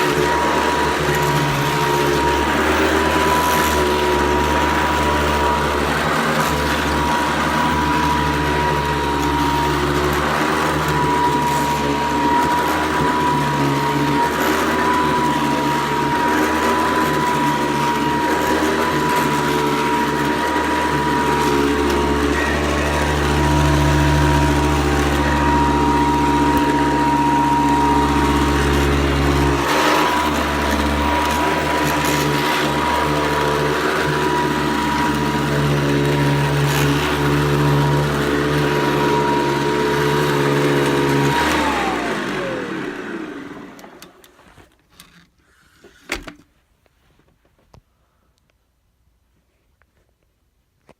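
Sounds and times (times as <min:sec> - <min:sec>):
upright vacuum cleaner running: 0:00.0 - 0:45.1.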